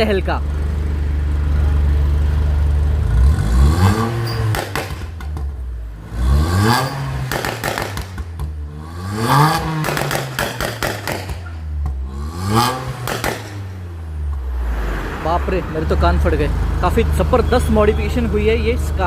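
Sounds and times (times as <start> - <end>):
car engine revving: 0.5 - 17.5
exhaust crackles: 3.0 - 17.3.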